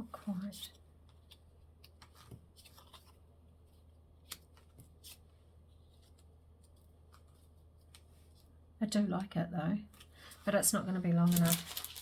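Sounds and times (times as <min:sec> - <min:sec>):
paper handling clicks and rustles: 0:04.2 - 0:08.5, 0:11.2 - 0:12.0.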